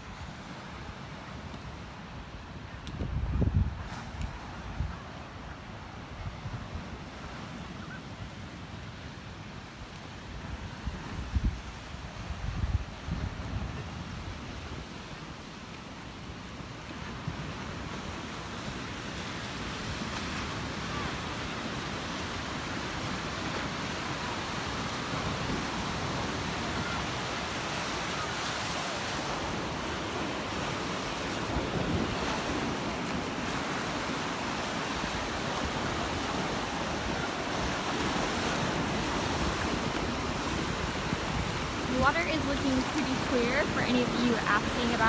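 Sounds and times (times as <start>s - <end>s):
surf breaking on beach: 0.0s - 45.0s
wind buffeting microphone: 2.6s - 7.6s, 10.4s - 15.0s, 22.4s - 45.0s.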